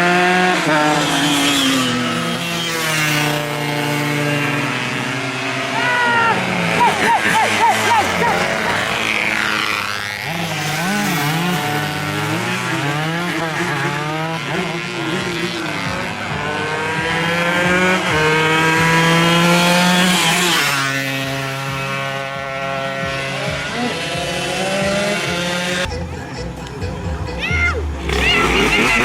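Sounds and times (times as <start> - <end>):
motorcycle passing by: 0.0 - 29.0
racing motorcycles at full throttle: 0.0 - 29.0.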